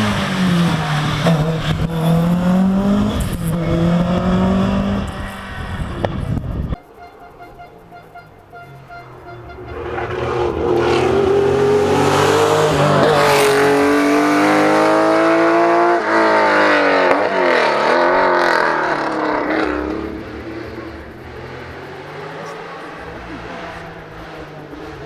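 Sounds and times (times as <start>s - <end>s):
rally car engine running hard: 9.8s - 25.0s.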